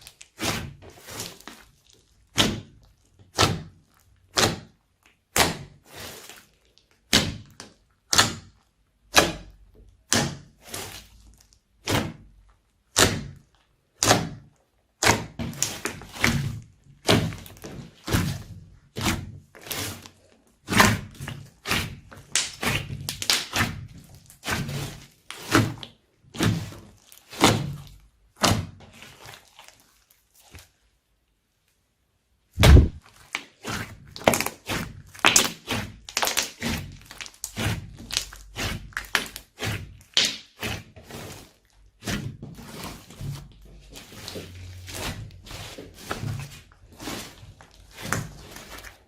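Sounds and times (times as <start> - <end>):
slime squishing with sticky pops: 0.0 - 30.9, 32.6 - 49.0
heavy slime slap: 5.3 - 6.4, 14.0 - 14.4, 15.0 - 29.8, 32.6 - 49.0.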